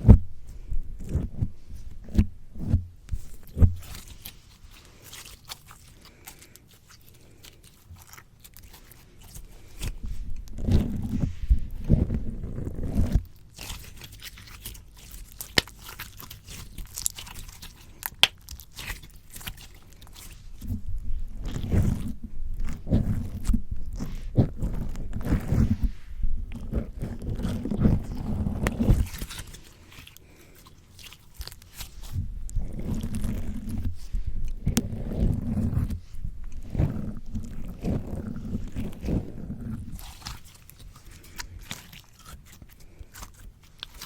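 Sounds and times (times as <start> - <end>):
slime squelching: 0.0 - 44.0.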